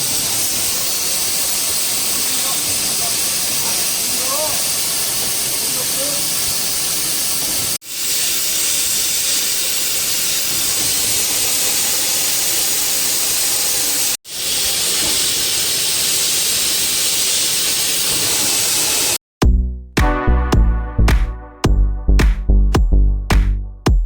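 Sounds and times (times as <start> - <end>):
gas torch flames hissing: 0.0 - 19.2
electronic music with a beat: 19.4 - 24.0.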